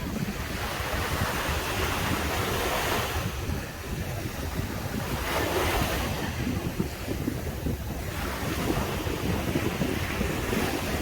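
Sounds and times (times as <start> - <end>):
sea waves breaking: 0.0 - 11.0
wind rumbling on microphone: 0.0 - 11.0.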